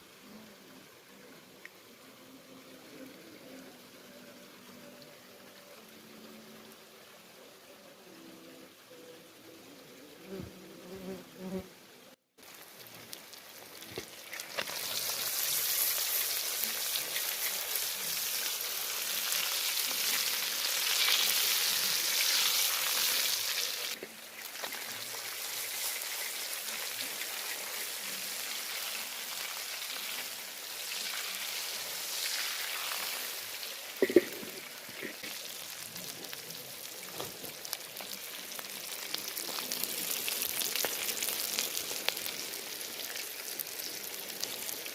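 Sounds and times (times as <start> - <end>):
food sizzling in a pan: 12.4 - 44.9.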